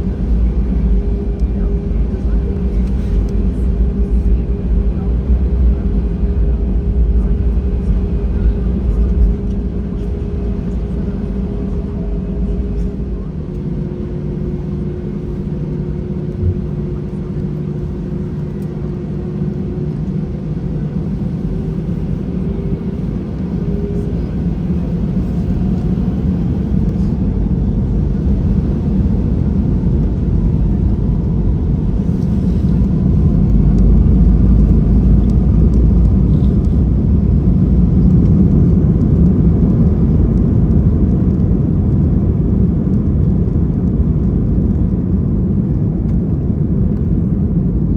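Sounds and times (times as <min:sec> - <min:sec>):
aircraft cabin engine rumble: 0:00.0 - 0:47.9.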